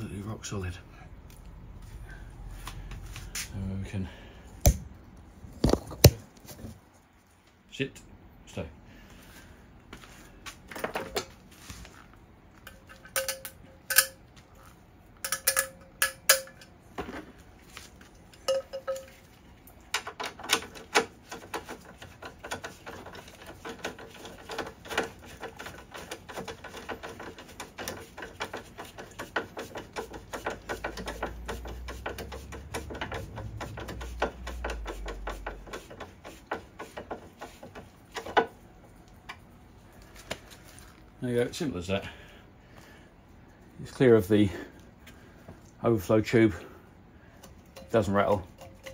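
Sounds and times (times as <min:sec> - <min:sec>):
metal tools clinking: 0:12.6 - 0:14.3, 0:15.2 - 0:16.7, 0:18.4 - 0:19.2.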